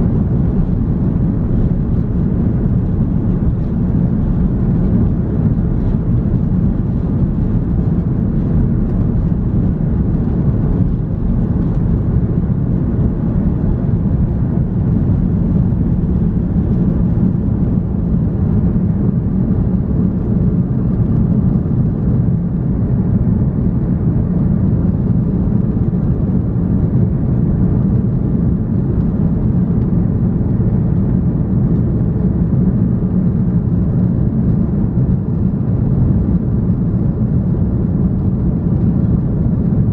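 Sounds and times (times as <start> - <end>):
airliner engine drone in cabin: 0.0 - 39.9.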